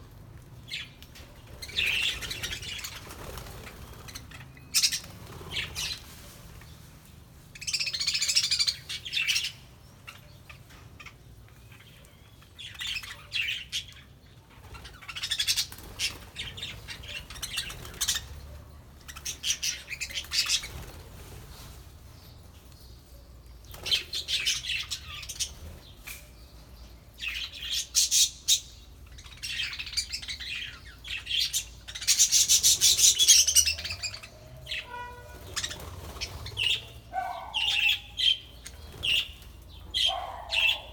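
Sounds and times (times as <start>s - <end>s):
budgerigars chirping and chattering: 0.7s - 6.1s, 7.6s - 21.3s, 23.7s - 26.6s, 27.2s - 40.9s.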